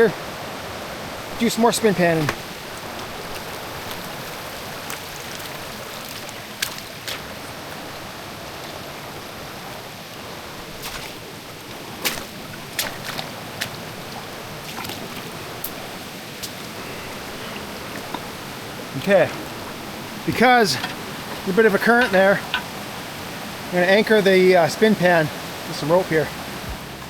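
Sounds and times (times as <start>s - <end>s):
creek water rushing: 0.0s - 27.0s
sharp clicks and knocks: 20.8s - 22.8s.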